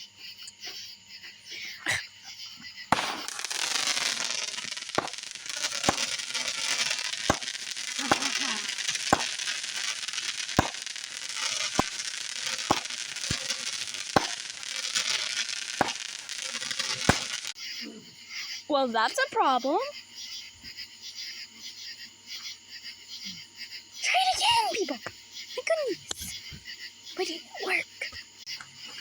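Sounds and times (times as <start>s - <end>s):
firework hissing and crackling: 1.3s - 17.6s, 24.0s - 25.0s, 25.6s - 26.6s, 27.2s - 28.1s
firework sharp pops: 2.7s - 17.6s, 25.8s - 26.7s.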